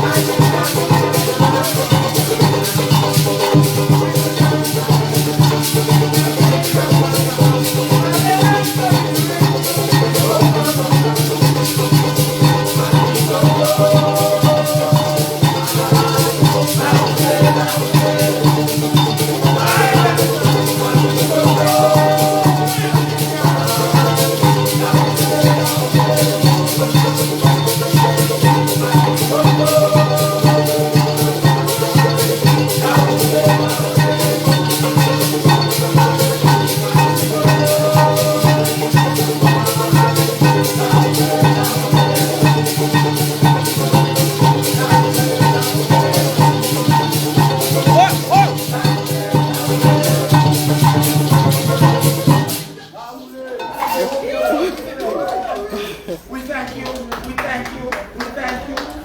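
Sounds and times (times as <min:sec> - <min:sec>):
string band playing: 0:00.0 - 0:57.2
maracas shaking: 0:00.0 - 0:59.0.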